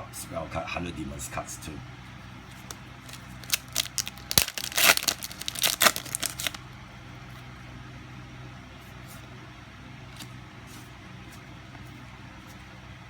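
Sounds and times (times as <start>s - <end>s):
plastic wrapper tearing and crinkling: 2.6s - 6.6s.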